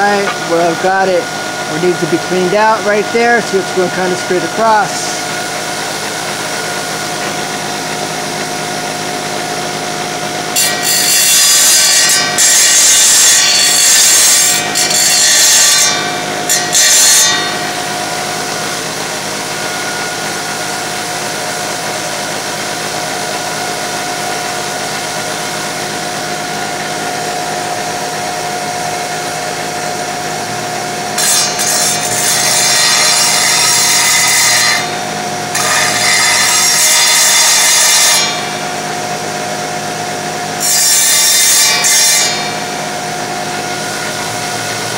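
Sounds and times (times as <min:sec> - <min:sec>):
saw blade grinding tile: 0:00.0 - 0:09.6, 0:10.4 - 0:22.4, 0:31.2 - 0:38.6, 0:40.6 - 0:42.8
tile saw humming: 0:00.0 - 0:44.9.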